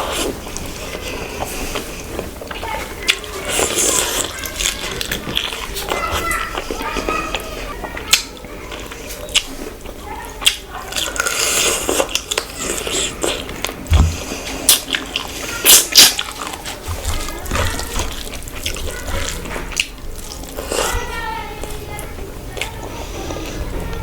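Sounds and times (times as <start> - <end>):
wet chewing and lip smacks: 7.9 - 21.0.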